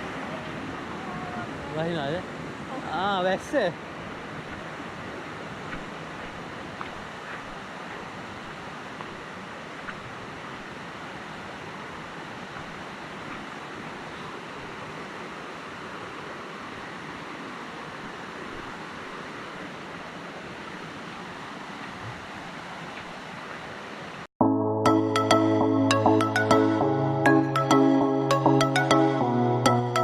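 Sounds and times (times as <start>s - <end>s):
music: 24.4s - 30.0s.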